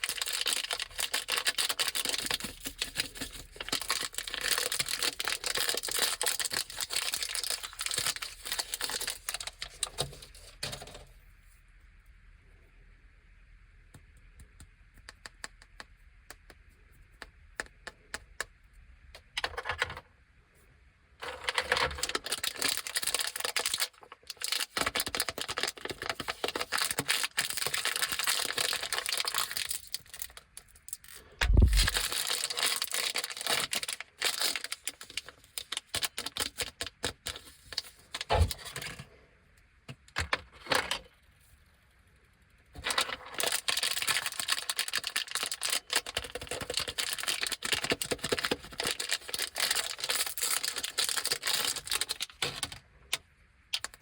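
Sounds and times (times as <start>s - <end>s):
plastic wrappers crinkling: 0.0s - 11.0s, 21.2s - 38.9s, 42.8s - 52.8s.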